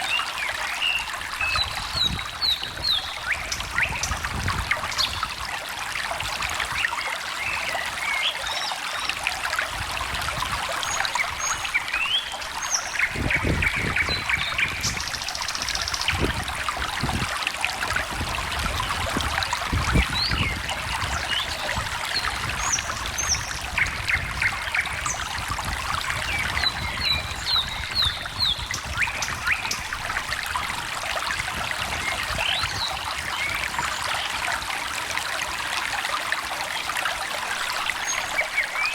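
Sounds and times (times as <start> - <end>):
stream trickling: 0.0 - 38.9
birds chirping: 10.8 - 16.4, 26.1 - 30.1.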